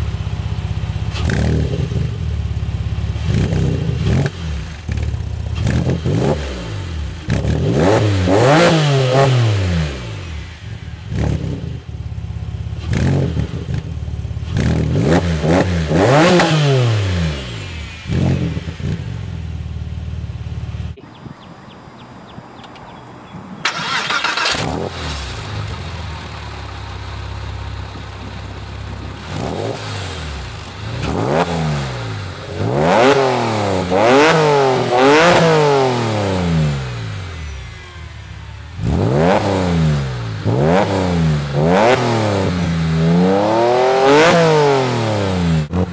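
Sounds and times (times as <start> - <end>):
car engine revving: 0.0 - 21.0, 22.4 - 45.9.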